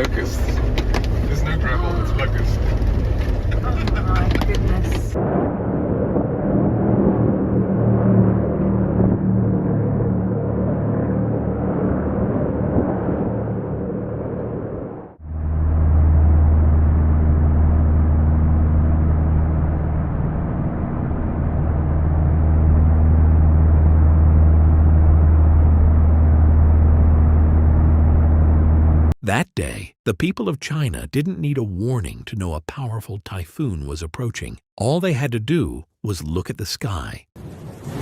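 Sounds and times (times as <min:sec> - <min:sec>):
car cabin rumble: 0:00.0 - 0:05.2
deep rumble with low hum: 0:00.0 - 0:29.2.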